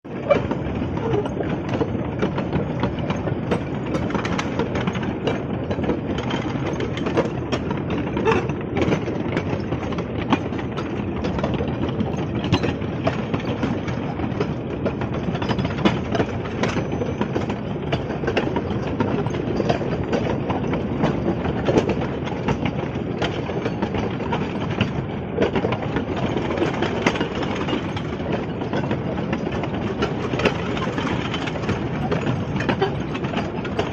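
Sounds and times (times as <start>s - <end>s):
train rolling rumble: 0.0s - 33.9s
wheels and couplings clanking: 0.0s - 33.9s.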